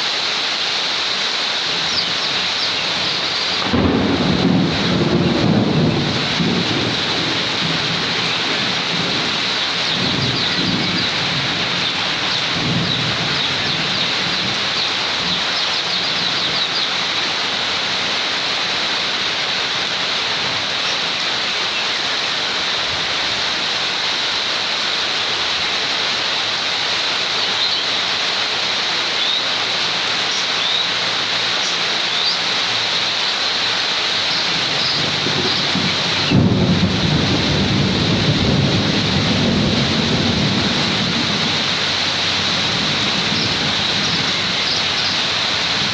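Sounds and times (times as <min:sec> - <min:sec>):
steady rain falling: 0:00.0 - 0:45.9
thunderclap rumbling: 0:01.7 - 0:18.2, 0:34.1 - 0:45.9.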